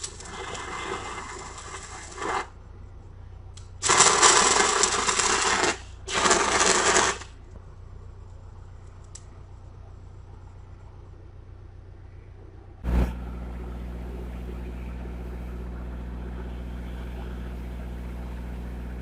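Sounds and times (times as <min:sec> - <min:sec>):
welding arc crackling: 0:00.0 - 0:02.7, 0:03.6 - 0:07.6, 0:12.8 - 0:19.0
steady low hum: 0:00.0 - 0:19.0.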